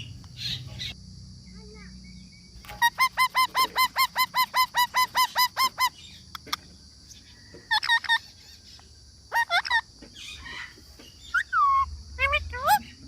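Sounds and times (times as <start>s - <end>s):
parrot shrill calls: 2.7s - 6.2s, 7.7s - 8.5s, 9.3s - 12.9s.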